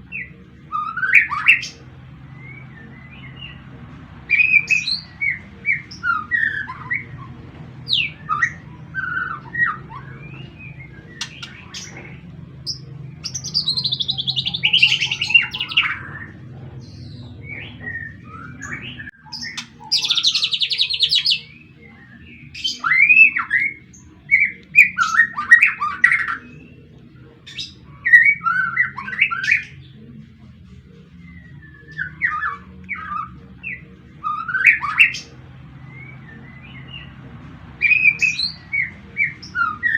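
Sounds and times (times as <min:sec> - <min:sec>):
bird chattering trills: 0:00.0 - 0:30.2
bird whistling and chirping: 0:00.0 - 0:30.2, 0:30.9 - 0:39.9
low hum: 0:00.0 - 0:39.9.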